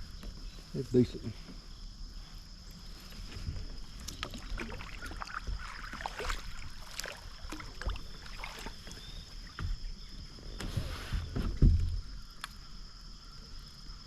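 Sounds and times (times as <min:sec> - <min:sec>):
water splashes: 0:03.7 - 0:09.7.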